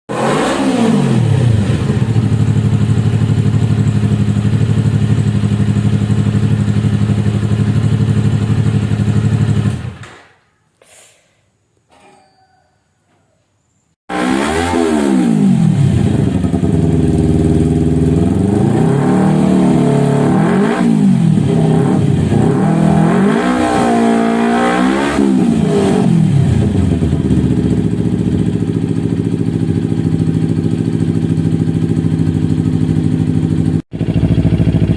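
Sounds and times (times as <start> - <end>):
motorcycle engine idling: 1.5 - 10.0, 15.9 - 18.5, 26.4 - 34.9.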